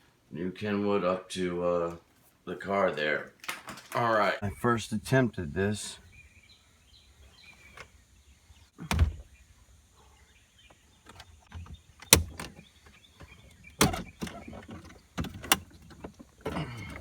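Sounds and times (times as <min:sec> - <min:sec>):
sharp knocks and clicks: 0:11.1 - 0:12.6.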